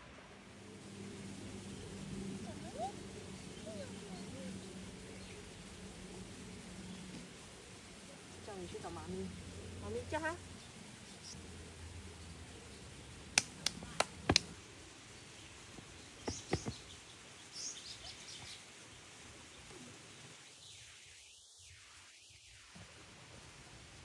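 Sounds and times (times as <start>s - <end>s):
faint outdoor hush: 0.0s - 24.0s
sharp knocks: 14.0s - 14.5s, 16.2s - 16.8s.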